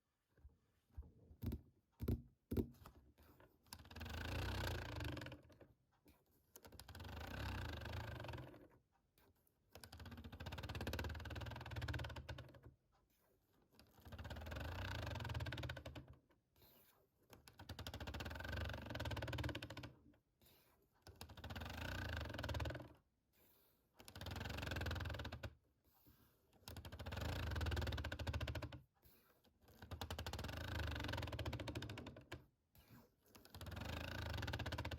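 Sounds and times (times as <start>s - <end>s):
fingers tapping on small object: 1.4s - 2.9s.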